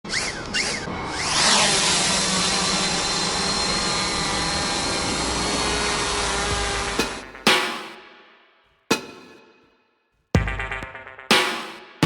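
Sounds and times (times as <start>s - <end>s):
drone propellers whirring: 0.1s - 7.2s.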